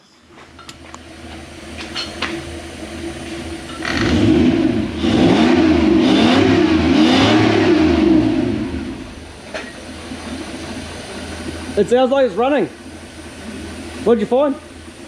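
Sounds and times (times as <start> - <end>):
engine revving: 3.8 - 9.3.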